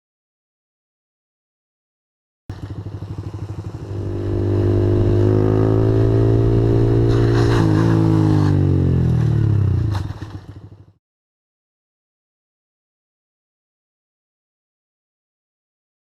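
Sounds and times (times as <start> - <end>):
motorcycle engine revving: 2.5 - 11.0
clatter and scraping: 7.0 - 10.8.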